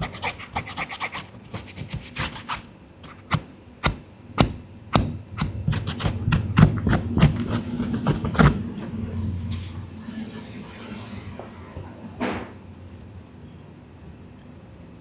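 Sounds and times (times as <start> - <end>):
sharp knocks and taps: 3.3 - 8.6.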